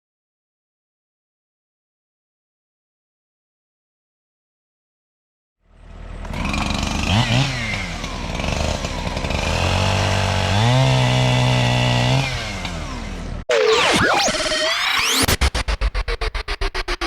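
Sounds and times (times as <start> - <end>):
chainsaw engine revving: 5.9 - 13.4.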